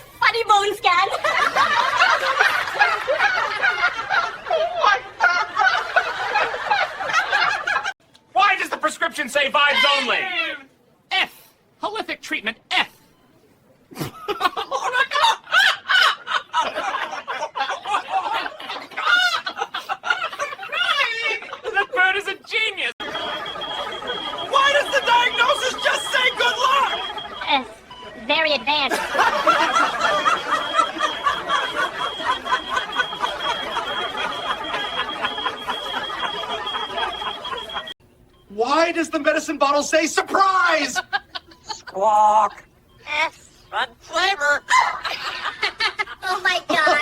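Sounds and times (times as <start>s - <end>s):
hearty laughter: 1.1s - 8.0s, 13.9s - 22.2s, 23.0s - 28.1s, 28.9s - 37.9s, 44.7s - 46.2s
steady high-pitched tone: 23.0s - 38.6s.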